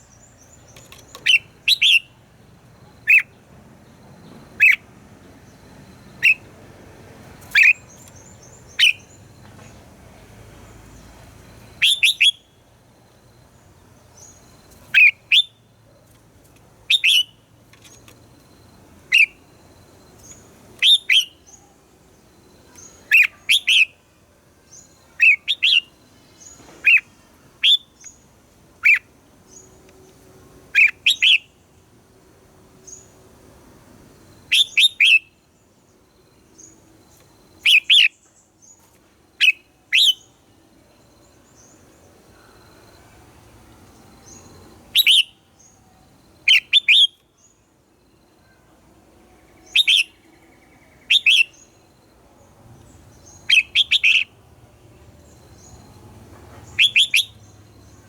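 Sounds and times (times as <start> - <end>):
bird singing short phrases: 0.0 - 2.2, 11.8 - 12.6, 16.9 - 18.2, 20.2 - 21.7, 22.6 - 24.0, 24.7 - 28.2, 30.8 - 31.6, 34.5 - 35.3, 36.6 - 38.8, 39.4 - 40.4, 44.2 - 45.8, 46.5 - 47.6, 49.4 - 51.8, 53.1 - 54.4, 56.6 - 58.0
faint high chirps: 39.4 - 58.0.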